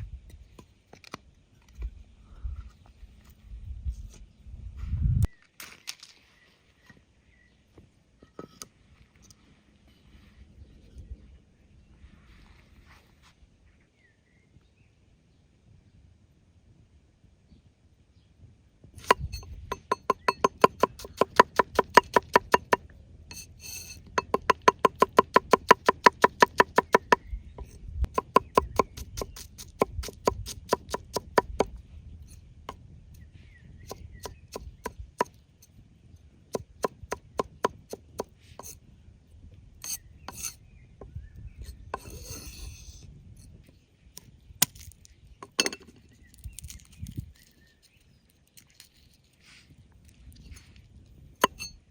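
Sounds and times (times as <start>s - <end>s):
knife chopping on wooden board: 19.0s - 22.8s, 24.2s - 27.2s, 28.1s - 31.7s, 36.6s - 38.7s
knife scraping across board: 23.3s - 25.5s, 38.2s - 38.8s, 39.8s - 40.6s, 41.6s - 43.1s.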